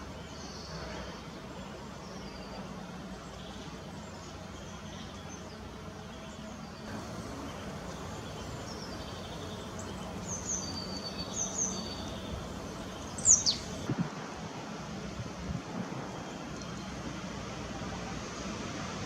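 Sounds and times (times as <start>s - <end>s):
small birds chirping: 0.0s - 14.0s
steady background noise: 0.0s - 19.0s.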